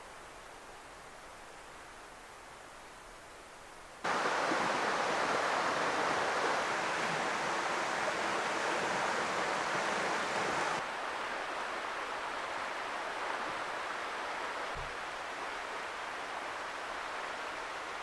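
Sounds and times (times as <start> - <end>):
flowing water rushing: 4.0 - 18.0.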